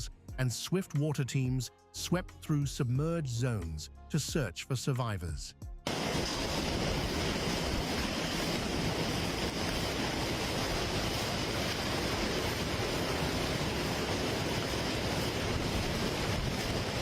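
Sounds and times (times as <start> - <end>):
water rushing: 5.9 - 17.0
wind noise on microphone: 5.9 - 17.0.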